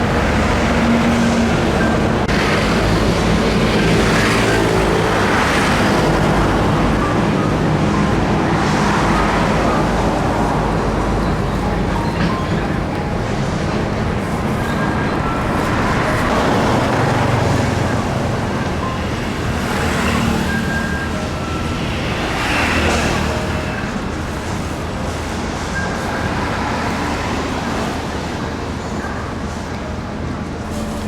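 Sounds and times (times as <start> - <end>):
traffic rumble: 0.0 - 31.0
vehicles passing close: 0.0 - 31.0.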